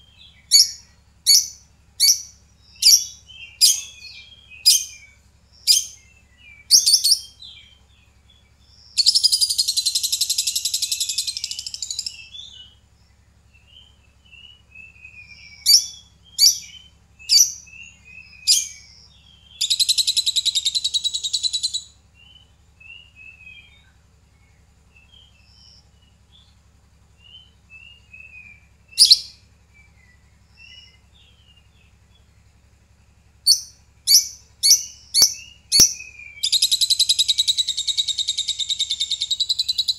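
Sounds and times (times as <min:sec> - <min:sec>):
lovebird rapid trill: 0:00.0 - 0:23.8, 0:24.9 - 0:32.3, 0:33.3 - 0:39.9
soft bird twittering: 0:00.0 - 0:39.9
lovebird shrill chirps: 0:00.5 - 0:06.0, 0:06.7 - 0:07.4, 0:09.0 - 0:12.7, 0:15.6 - 0:17.6, 0:18.3 - 0:18.9, 0:19.6 - 0:21.9, 0:29.0 - 0:29.4, 0:33.5 - 0:39.9.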